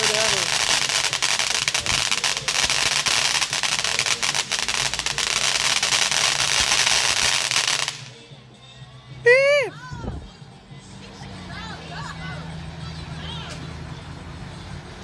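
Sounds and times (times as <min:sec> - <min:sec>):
fireworks crackling: 0:00.0 - 0:08.2.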